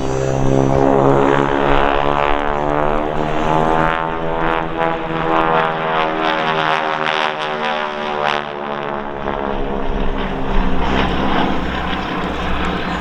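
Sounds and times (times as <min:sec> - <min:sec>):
biplane engine and propeller: 0:00.0 - 0:13.0.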